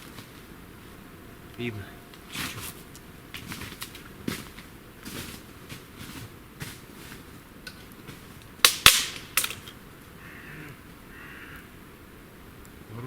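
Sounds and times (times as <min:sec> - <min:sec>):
sharp cracks: 0:07.6 - 0:09.9
crow cawing: 0:10.1 - 0:11.9.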